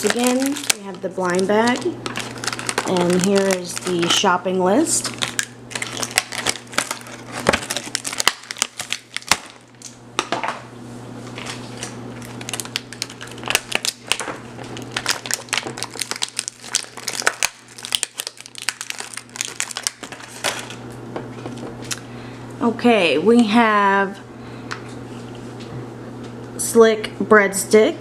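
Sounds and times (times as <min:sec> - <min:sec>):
plastic packaging crinkling: 0:00.0 - 0:10.0, 0:11.3 - 0:22.1
steady low hum: 0:00.0 - 0:28.0.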